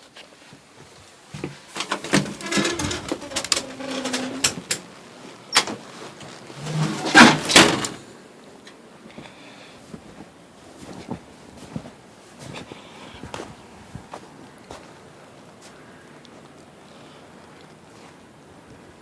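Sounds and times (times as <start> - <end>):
door opening and shutting: 1.8 - 4.9, 5.5 - 8.0
door creaking: 1.8 - 8.0.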